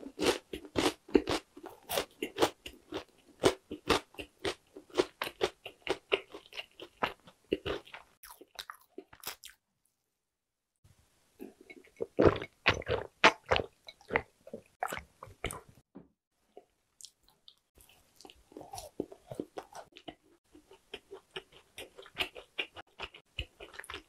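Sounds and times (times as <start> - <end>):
person chewing sticky cookies: 0.0 - 9.6, 11.4 - 15.8, 16.5 - 24.0.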